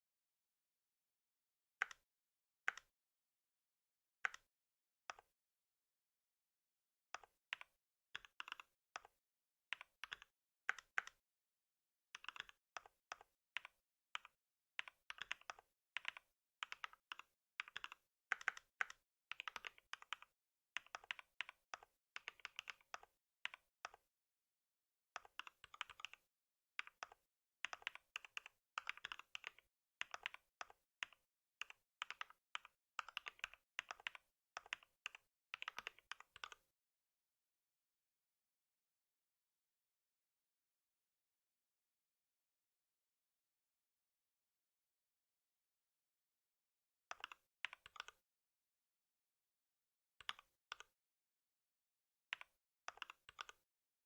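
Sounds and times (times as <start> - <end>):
typing on computer keyboard: 7.2 - 9.1, 9.7 - 11.2, 12.2 - 24.0, 25.2 - 26.2, 26.8 - 36.6, 47.1 - 48.2, 52.3 - 53.6.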